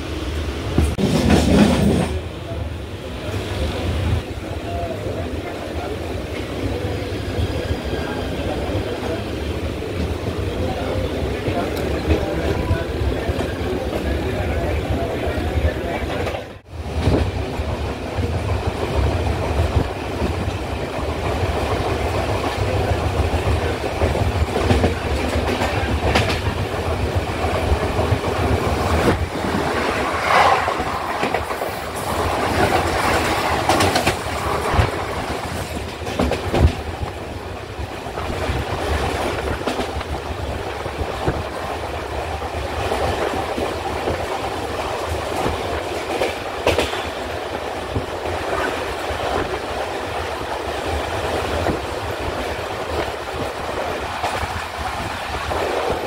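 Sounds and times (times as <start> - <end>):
passing train rushing by: 0.0 - 56.0
train rumbling: 0.0 - 56.0
wheels clacking over rail joints: 20.2 - 37.1, 42.3 - 50.2.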